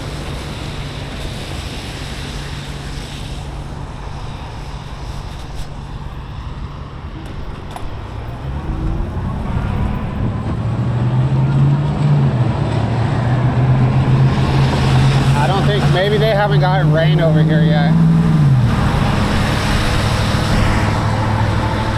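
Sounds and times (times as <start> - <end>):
low engine hum: 0.0 - 21.9
wind on microphone: 6.8 - 16.3, 17.2 - 21.9.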